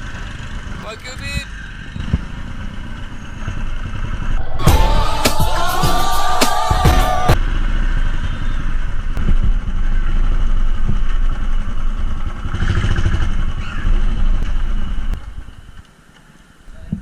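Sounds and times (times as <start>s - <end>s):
music: 4.4s - 7.4s.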